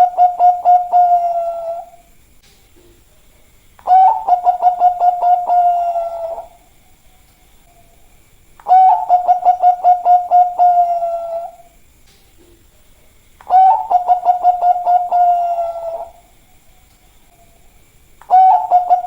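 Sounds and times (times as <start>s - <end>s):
dove cooing: 0.0s - 2.1s, 3.8s - 6.7s, 8.6s - 11.8s, 13.4s - 16.4s, 18.2s - 19.0s.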